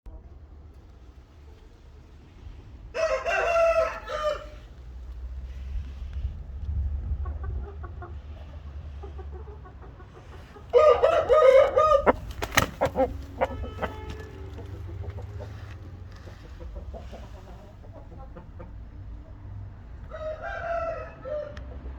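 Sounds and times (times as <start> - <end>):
rooster crowing: 2.9 - 4.6, 10.7 - 12.2, 12.8 - 14.6, 20.1 - 21.7.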